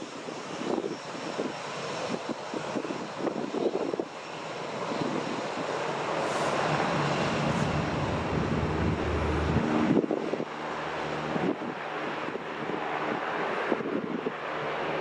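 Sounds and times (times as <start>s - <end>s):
jet engines roaring: 0.0s - 15.0s
wind buffeting microphone: 4.8s - 14.5s.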